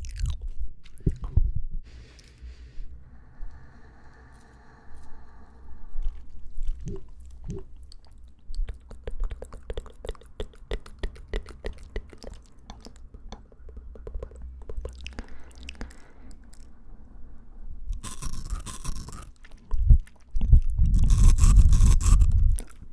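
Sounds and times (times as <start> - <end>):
chewing fresh fruit: 0.0 - 1.4, 4.2 - 16.7, 17.9 - 22.9
mouth clicks: 6.0 - 16.7.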